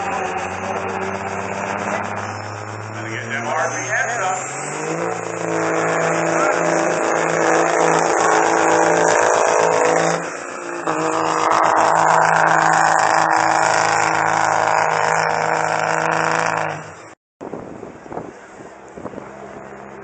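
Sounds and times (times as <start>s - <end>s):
diesel engine at high revs: 0.0s - 17.2s, 18.3s - 20.0s.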